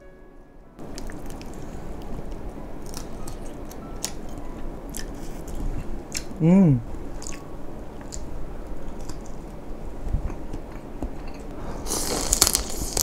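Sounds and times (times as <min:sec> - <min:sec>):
wet chewing: 0:00.8 - 0:04.2, 0:07.2 - 0:07.4, 0:08.0 - 0:09.6
crackling: 0:10.4 - 0:13.0.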